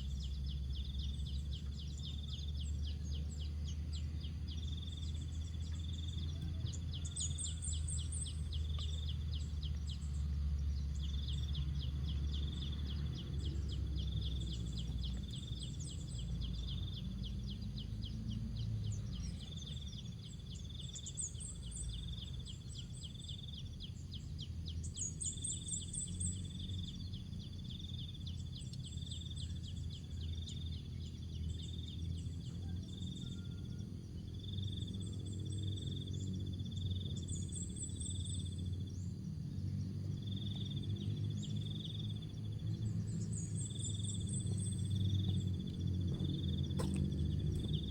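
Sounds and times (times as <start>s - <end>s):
small birds twittering: 0.0s - 47.9s
insects chirping: 40.0s - 47.9s.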